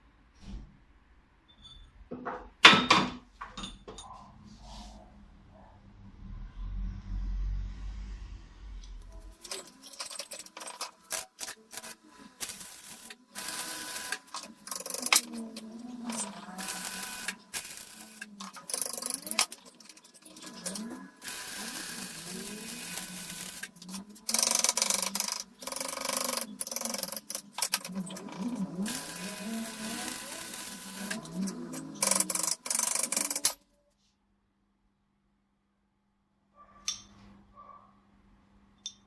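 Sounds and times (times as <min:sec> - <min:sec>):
belt grinder grinding: 0:09.2 - 0:33.6
belt grinder whine: 0:09.3 - 0:33.6.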